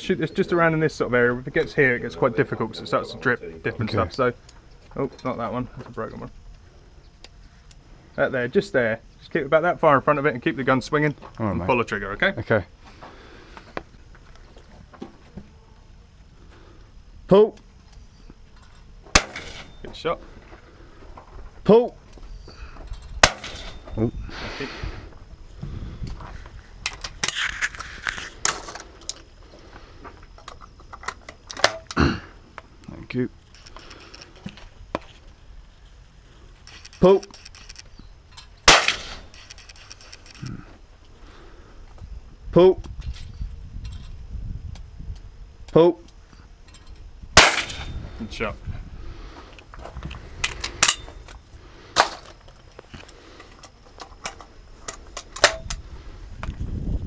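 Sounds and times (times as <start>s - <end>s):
shotgun metallic clicks and rattles: 33.4s - 34.6s, 36.6s - 40.5s, 52.0s - 55.8s
shotgun metallic clicks: 36.6s - 40.5s.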